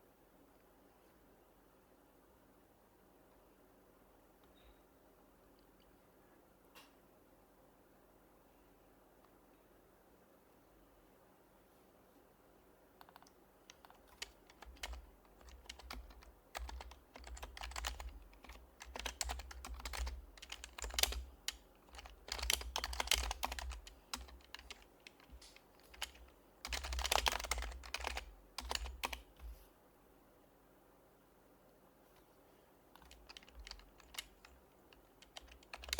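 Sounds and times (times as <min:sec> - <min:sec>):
soft muted keyboard typing: 0:13.0 - 0:29.6, 0:32.9 - 0:35.9.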